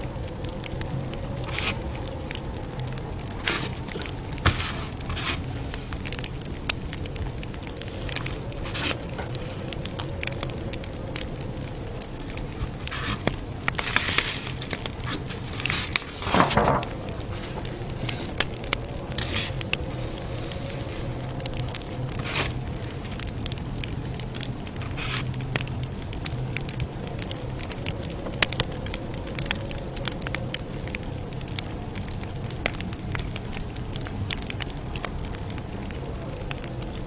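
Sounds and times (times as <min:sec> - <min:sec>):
campfire crackling: 0:00.1 - 0:28.2
burning wood popping: 0:01.1 - 0:11.2, 0:11.8 - 0:25.4
rustling: 0:01.4 - 0:02.0, 0:03.2 - 0:06.3, 0:08.0 - 0:09.2, 0:12.3 - 0:23.2, 0:24.8 - 0:25.4.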